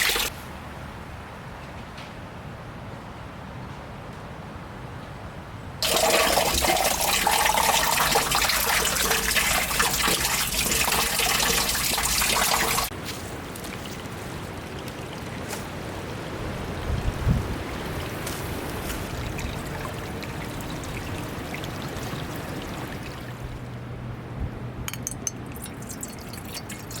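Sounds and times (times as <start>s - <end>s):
water running into container: 0.0s - 0.3s, 5.8s - 15.9s, 17.0s - 23.8s, 25.0s - 27.0s
water trickling and dripping: 0.0s - 0.3s, 5.8s - 23.9s, 24.9s - 27.0s.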